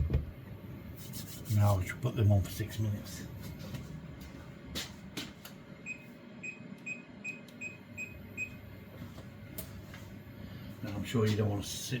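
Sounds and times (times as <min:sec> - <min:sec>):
kitchen timer beeping: 0:05.8 - 0:08.6.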